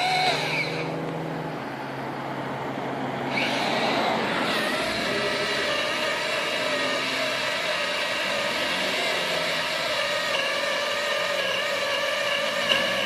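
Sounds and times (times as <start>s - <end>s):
low engine hum: 0.0s - 7.2s.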